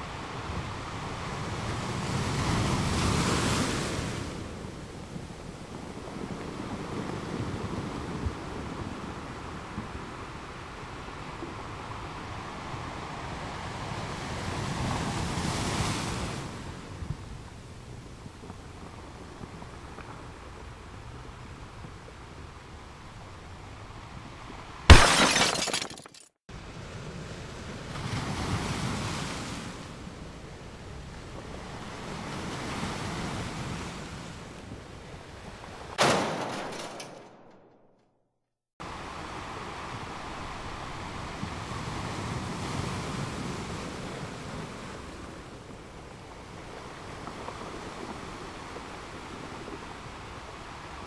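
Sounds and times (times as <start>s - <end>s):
soil and rock crashing from bucket: 24.9s - 26.3s.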